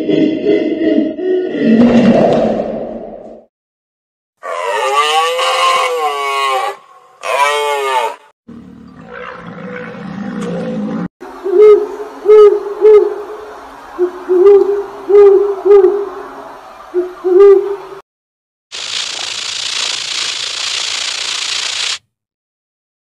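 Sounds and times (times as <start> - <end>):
owl hooting: 11.4 - 13.3, 14.0 - 16.1, 16.9 - 17.8.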